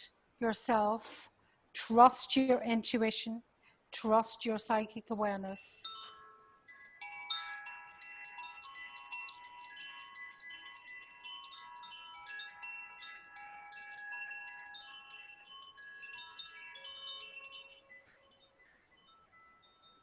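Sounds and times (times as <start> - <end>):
wind chimes ringing: 4.8 - 20.0.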